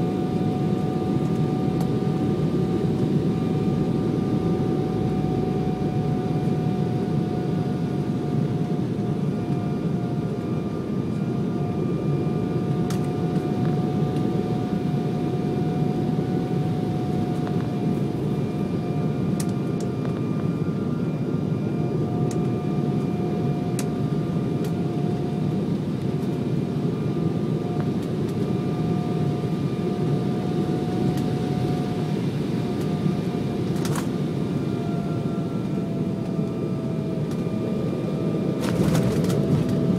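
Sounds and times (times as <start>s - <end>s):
thin steady whine: 0.0s - 39.9s
jet engine cabin rush: 31.1s - 39.9s.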